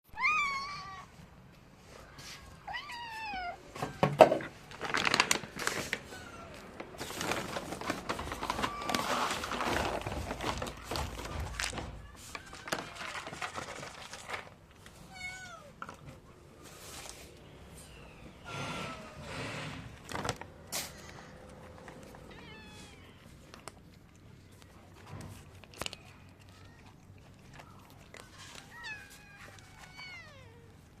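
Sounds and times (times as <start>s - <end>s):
cats meowing: 0.1s - 1.3s, 2.0s - 4.2s, 5.9s - 7.1s, 8.1s - 13.2s, 14.9s - 16.2s, 17.8s - 19.8s, 20.5s - 24.8s, 25.7s - 31.0s
rustling and crinkling: 0.7s - 31.0s.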